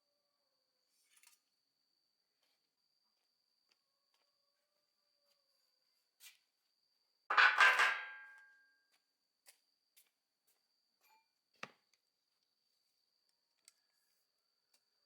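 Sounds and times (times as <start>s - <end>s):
metal tool clanking down: 7.3s - 8.4s.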